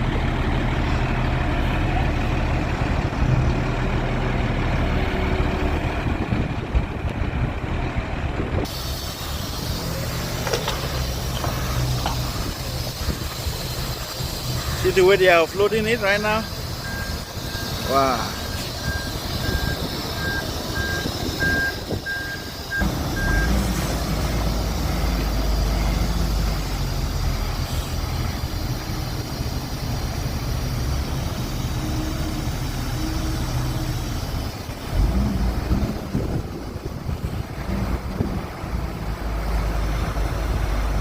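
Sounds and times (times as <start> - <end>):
heavy diesel engine under load: 0.0 - 41.0
backup alarm beeping: 16.2 - 23.6.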